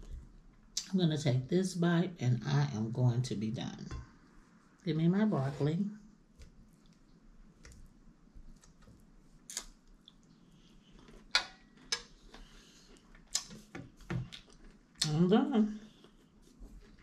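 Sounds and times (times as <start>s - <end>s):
person chewing food: 9.4s - 15.0s.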